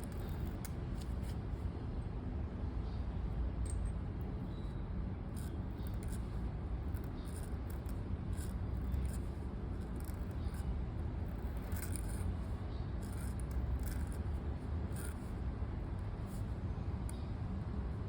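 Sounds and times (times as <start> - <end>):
pen scratching on paper: 5.4 - 14.3, 14.9 - 15.4.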